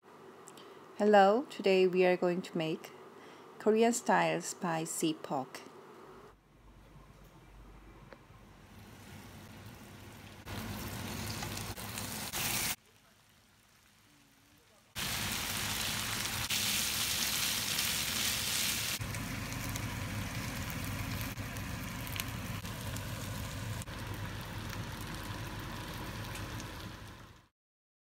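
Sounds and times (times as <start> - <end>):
pork sizzling in a frying pan: 9.0 - 27.5.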